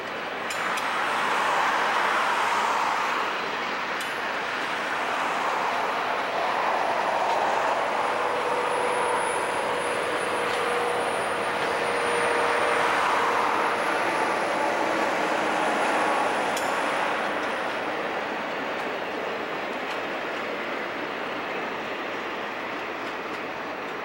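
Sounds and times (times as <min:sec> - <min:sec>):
train wheels on track: 0:00.0 - 0:24.0.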